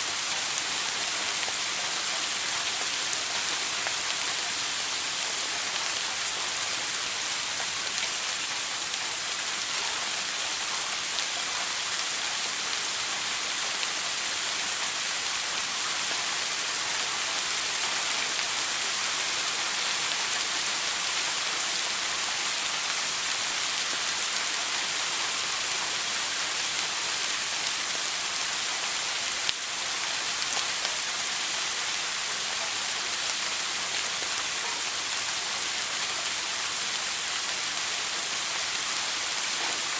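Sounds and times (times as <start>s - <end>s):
shower water spraying: 0.0s - 39.9s.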